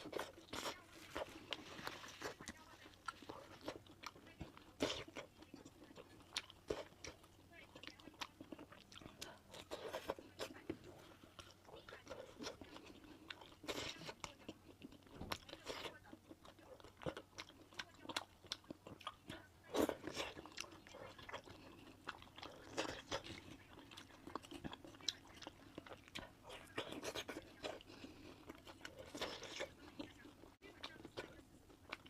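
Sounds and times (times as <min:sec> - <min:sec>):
person biting and chewing food: 0:00.0 - 0:32.0.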